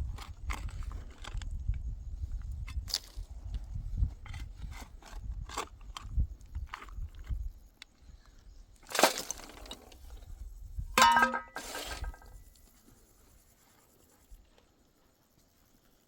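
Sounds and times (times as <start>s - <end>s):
ringing metal clank: 11.0s - 12.3s
short scrape: 11.5s - 12.4s.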